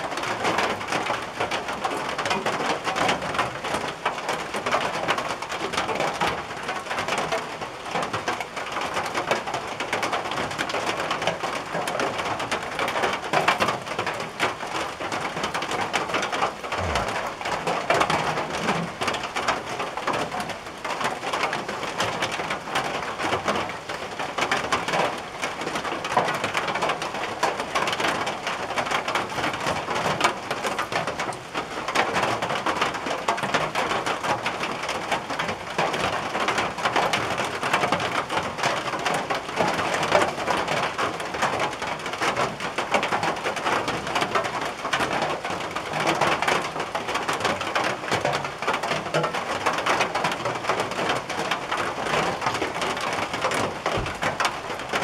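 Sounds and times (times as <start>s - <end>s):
rain on a tin roof: 0.0s - 55.0s.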